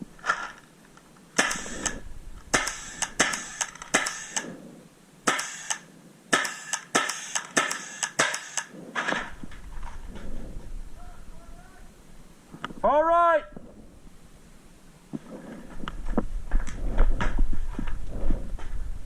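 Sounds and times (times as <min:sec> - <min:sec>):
paintball markers firing: 0:01.4 - 0:04.6, 0:05.2 - 0:09.3.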